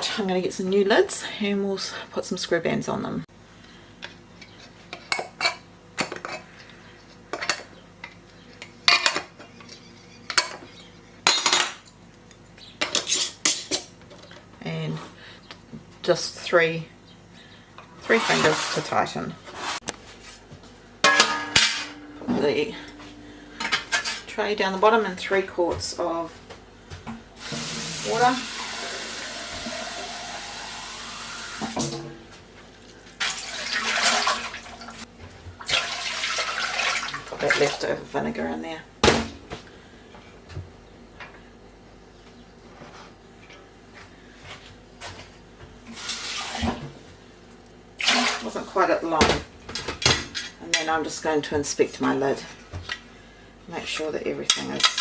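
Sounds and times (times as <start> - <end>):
tap water running into a pot: 27.4 - 32.0, 33.0 - 35.0, 35.6 - 37.8
water pouring: 33.1 - 35.0, 35.6 - 37.8.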